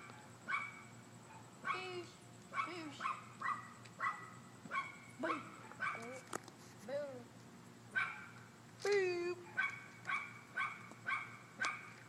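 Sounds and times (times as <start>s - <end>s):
dog barking: 0.0s - 1.9s, 2.6s - 6.1s, 8.0s - 8.4s, 9.4s - 12.0s.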